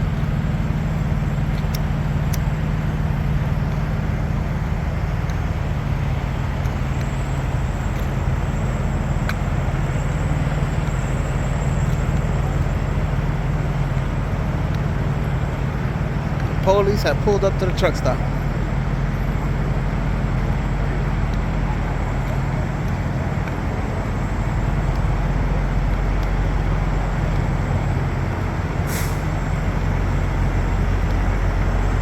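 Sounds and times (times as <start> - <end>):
diesel truck engine idling: 0.0 - 32.0
faint clicks: 1.5 - 2.6.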